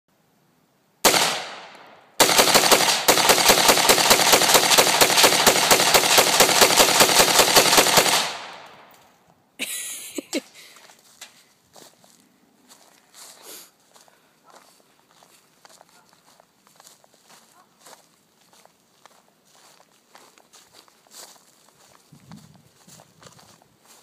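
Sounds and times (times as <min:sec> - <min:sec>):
rifle gunshots: 0:01.0 - 0:08.9.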